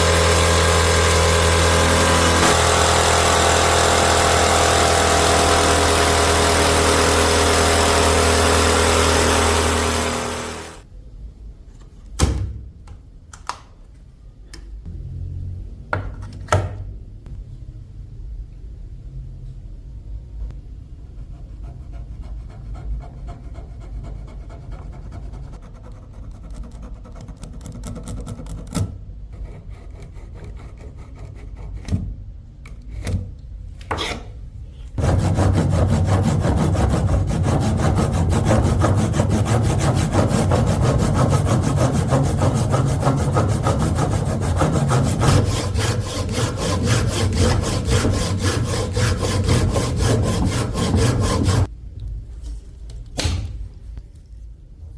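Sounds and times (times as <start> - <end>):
knocks and scrapes on wood: 35.0 - 51.7
rapid scraping of wood: 35.0 - 51.7.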